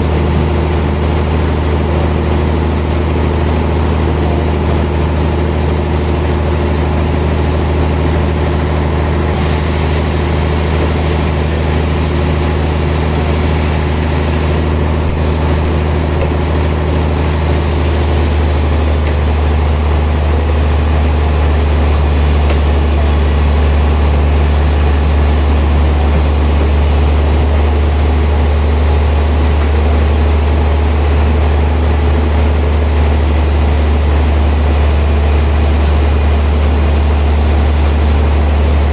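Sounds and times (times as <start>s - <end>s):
sawmill machinery droning: 0.0s - 38.9s.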